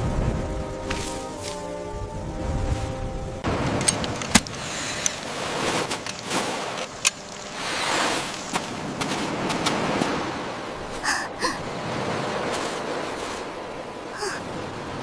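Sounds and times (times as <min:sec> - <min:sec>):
heavy rain and wind: 0:00.0 - 0:15.0.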